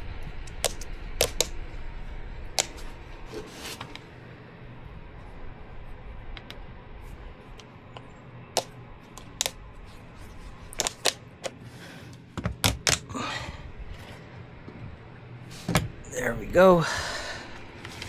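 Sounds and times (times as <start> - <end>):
low steady hum: 0.0 - 18.0
sharp clicks and knocks: 0.5 - 1.5, 2.6 - 2.9, 8.0 - 9.6, 10.8 - 11.6.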